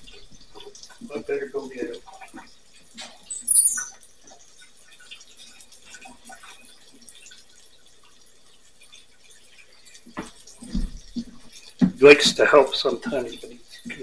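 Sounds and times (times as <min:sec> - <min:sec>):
meat and egg sizzling in pans: 0:00.0 - 0:14.0
high falling squeak: 0:03.2 - 0:04.0.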